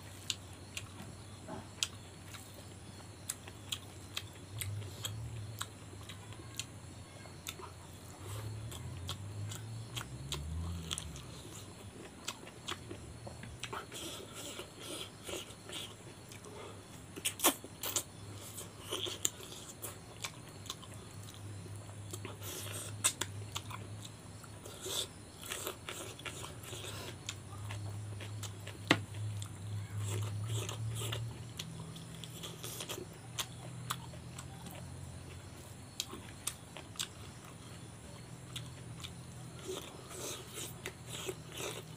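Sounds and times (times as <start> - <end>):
steady low hum: 0.0 - 41.9
chewing and lip smacking: 7.4 - 41.9.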